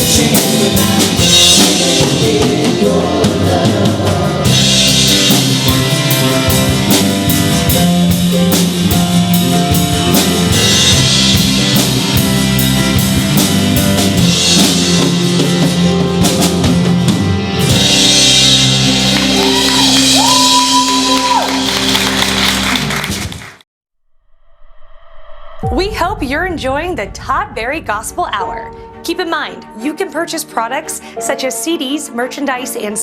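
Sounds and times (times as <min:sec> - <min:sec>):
sung vocals: 0:00.0 - 0:06.7
guitars: 0:00.0 - 0:21.9
drum kit beat: 0:00.0 - 0:23.6.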